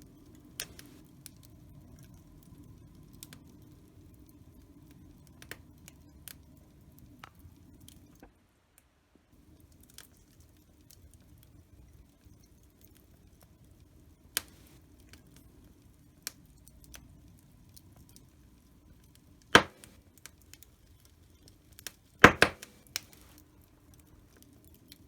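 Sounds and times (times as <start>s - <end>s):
wood fire crackling: 0.0s - 8.2s, 9.4s - 25.0s
loud pops: 19.6s - 20.0s, 22.2s - 23.1s.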